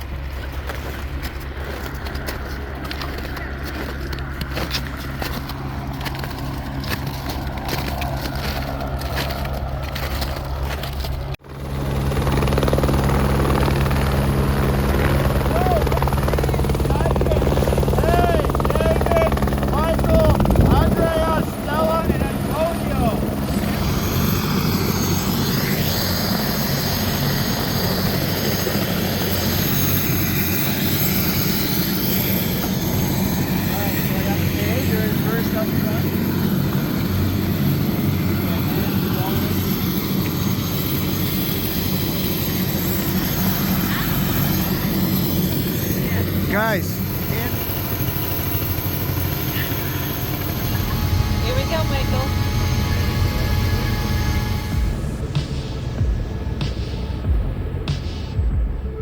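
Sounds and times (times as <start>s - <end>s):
crunching and crackling: 0.0s - 11.4s
helicopter humming: 0.0s - 59.0s.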